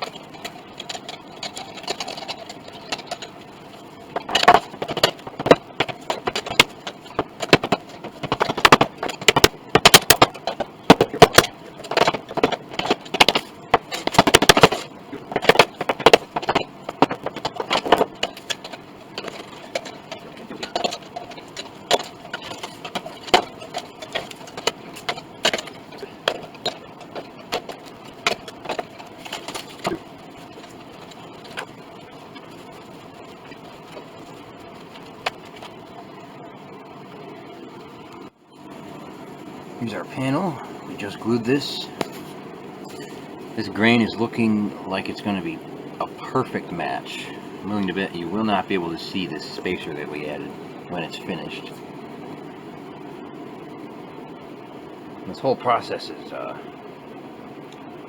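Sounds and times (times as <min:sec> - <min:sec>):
clicks knocks and clatter: 0:00.0 - 0:03.4, 0:04.1 - 0:31.8.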